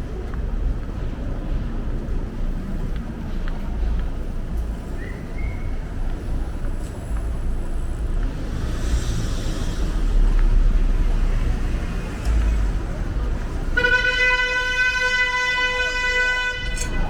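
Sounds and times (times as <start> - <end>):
street traffic rumble: 0.0 - 17.0
car horn long honk: 13.7 - 17.0.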